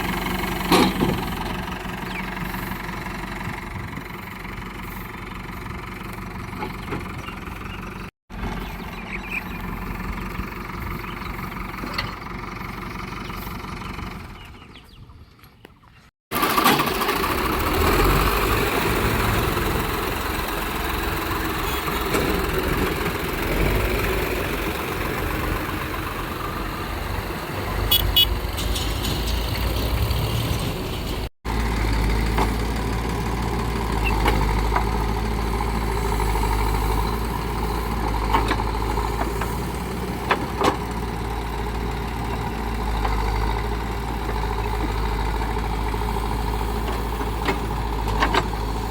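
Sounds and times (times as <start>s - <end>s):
diesel engines rumbling: 0.0s - 48.9s.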